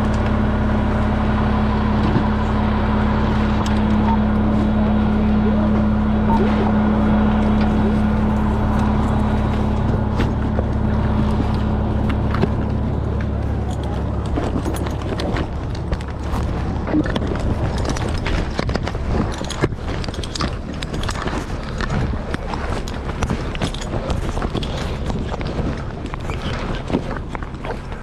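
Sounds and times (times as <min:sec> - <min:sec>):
fire engine engine drone: 0:00.0 - 0:28.0
higher hum: 0:00.0 - 0:28.0
knocks and rattles: 0:05.7 - 0:28.0.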